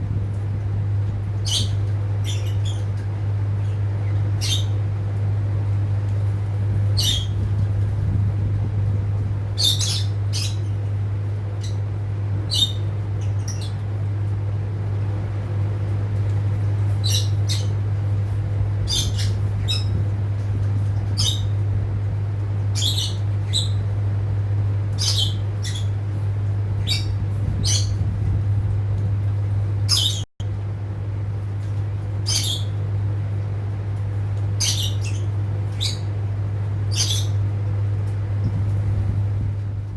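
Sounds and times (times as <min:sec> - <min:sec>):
birds squawking: 0:01.4 - 0:05.1, 0:06.8 - 0:07.5, 0:09.4 - 0:14.1, 0:16.6 - 0:28.1, 0:29.8 - 0:30.2, 0:32.1 - 0:33.4, 0:34.4 - 0:38.0.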